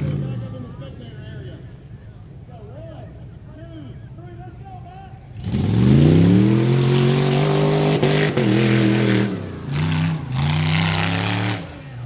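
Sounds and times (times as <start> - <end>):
engine revving: 5.4 - 11.8.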